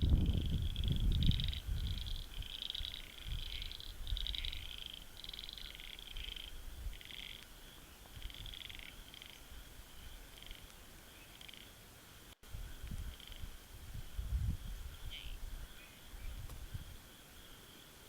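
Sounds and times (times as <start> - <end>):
frogs calling in chorus: 0.2 - 11.8, 12.6 - 13.5, 14.9 - 16.4.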